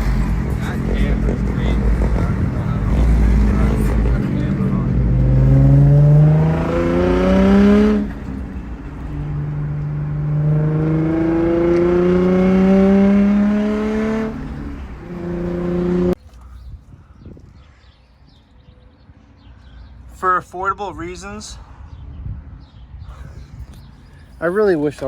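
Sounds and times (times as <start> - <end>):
car engine accelerating: 0.0 - 16.2.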